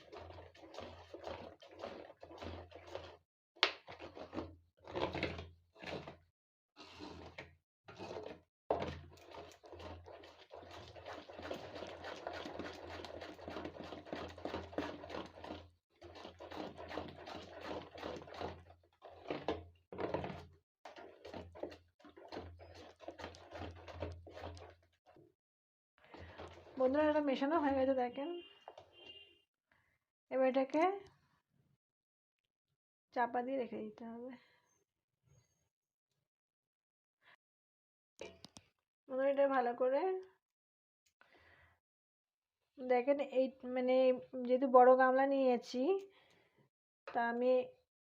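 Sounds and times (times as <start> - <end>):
batter squishing and scraping: 0.0 - 25.3, 26.0 - 27.4.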